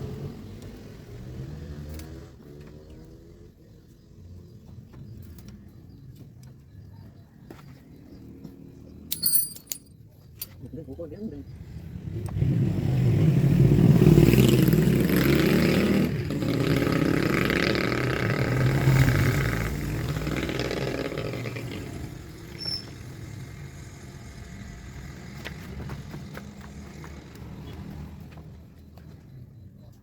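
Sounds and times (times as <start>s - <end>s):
vehicle engine running: 23.0s - 29.7s.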